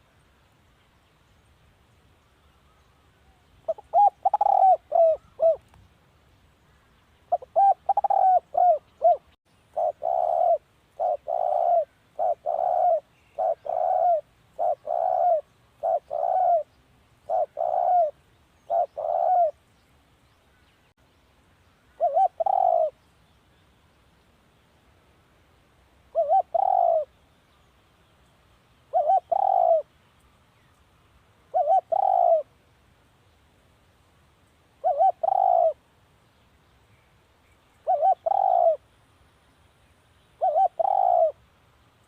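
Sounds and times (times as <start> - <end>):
dove cooing: 3.6 - 5.6, 7.3 - 19.6, 22.0 - 23.0, 26.1 - 27.1, 28.9 - 29.9, 31.5 - 32.5, 34.8 - 35.8, 37.8 - 38.8, 40.4 - 41.4.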